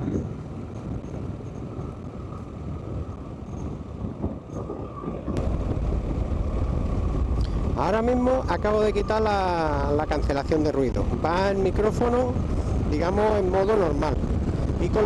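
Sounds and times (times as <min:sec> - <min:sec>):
wind rush: 0:00.0 - 0:15.0
motorcycle running: 0:05.4 - 0:15.0.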